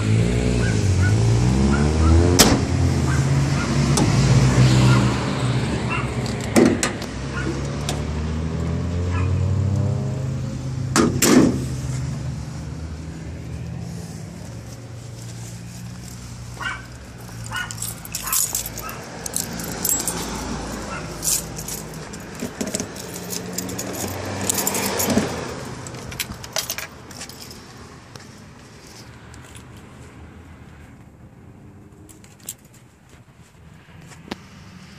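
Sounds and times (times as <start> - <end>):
clicking and jangling: 17.1 - 27.7.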